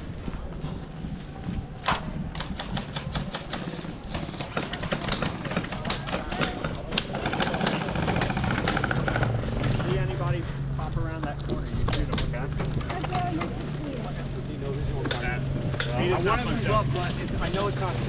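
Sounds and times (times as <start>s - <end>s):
faint voices: 0.0s - 18.0s.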